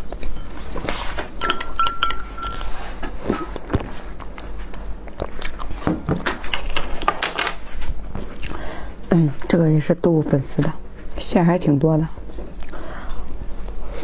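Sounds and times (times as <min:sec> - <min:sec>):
chewing and lip smacks: 0:05.0 - 0:05.8.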